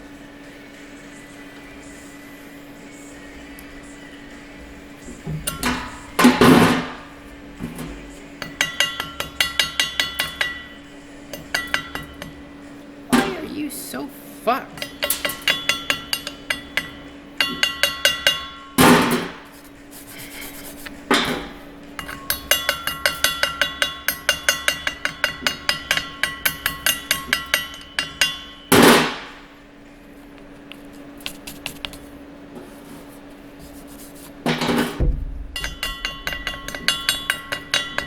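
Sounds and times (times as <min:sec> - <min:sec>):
hammer tapping on metal: 0:08.4 - 0:10.6, 0:35.6 - 0:38.0.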